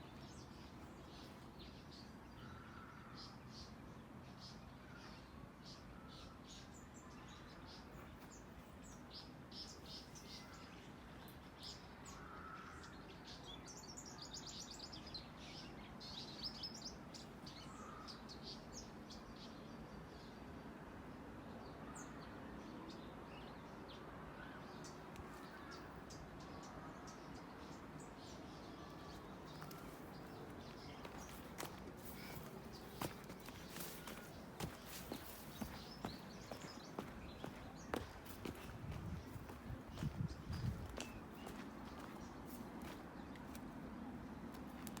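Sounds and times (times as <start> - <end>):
faint outdoor background noise: 0.0 - 45.0
birds chirping and calling: 29.1 - 43.0.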